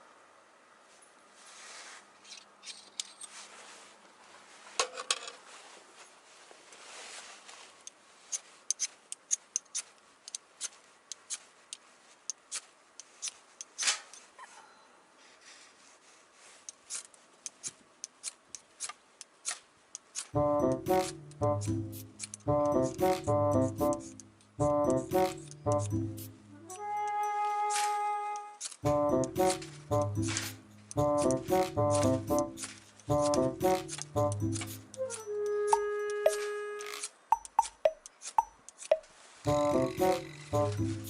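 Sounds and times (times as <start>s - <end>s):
rubbing and handling sounds: 0.8s - 14.4s, 15.2s - 21.1s, 28.6s - 35.2s, 38.2s - 41.0s
sharp snipping clicks: 16.9s - 20.4s, 30.9s - 39.0s.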